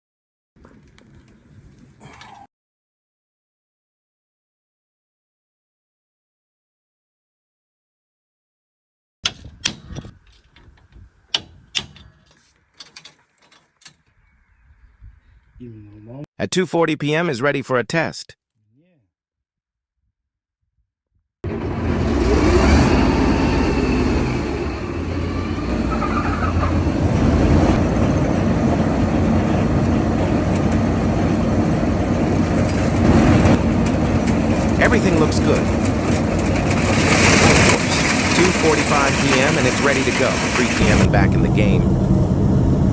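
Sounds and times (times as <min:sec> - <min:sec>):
combine harvester running: 0:21.5 - 0:42.9.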